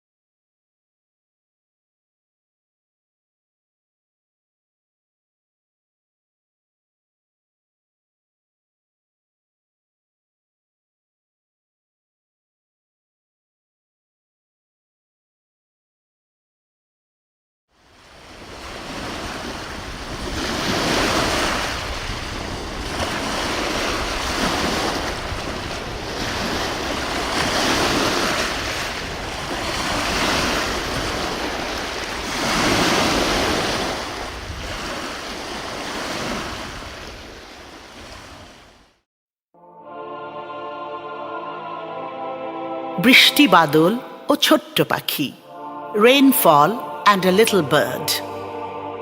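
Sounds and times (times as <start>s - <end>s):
ocean surf washing: 17.8s - 38.9s, 39.8s - 49.0s.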